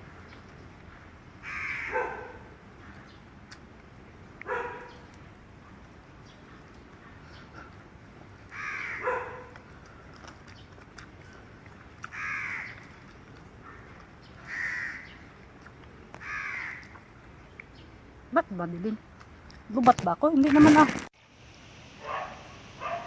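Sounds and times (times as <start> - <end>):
crows cawing: 1.4 - 2.0, 8.5 - 9.5, 12.1 - 12.9, 13.6 - 15.3, 16.2 - 17.0.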